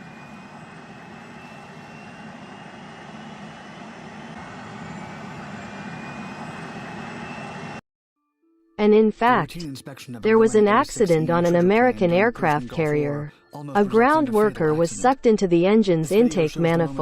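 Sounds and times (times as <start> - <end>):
jet engine whine: 0.0 - 7.8.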